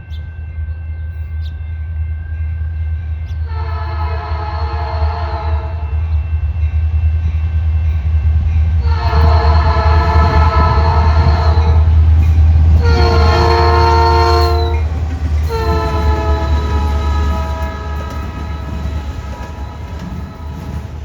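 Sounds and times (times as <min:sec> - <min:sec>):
train air horn blasts: 0:03.4 - 0:06.0, 0:08.8 - 0:12.0, 0:12.7 - 0:21.0.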